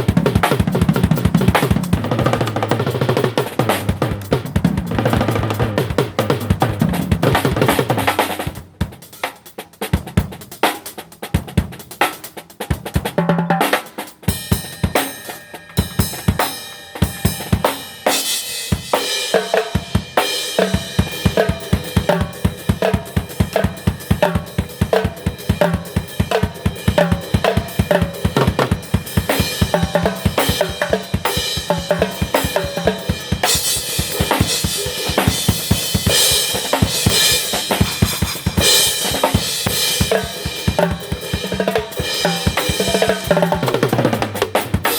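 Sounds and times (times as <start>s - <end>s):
fast drum kit playing: 0.0s - 44.9s
cymbals washing: 25.3s - 43.7s.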